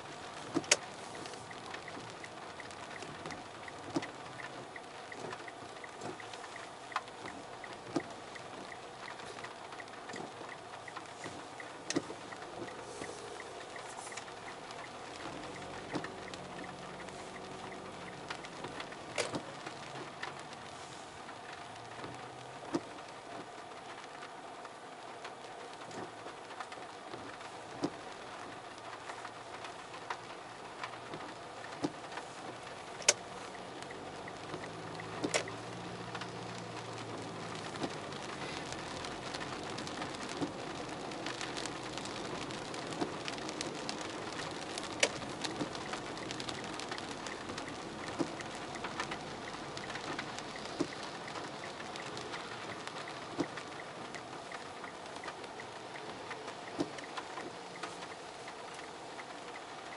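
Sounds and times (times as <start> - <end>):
faint low rumble: 0.0 - 59.9
steady rain: 0.0 - 59.9.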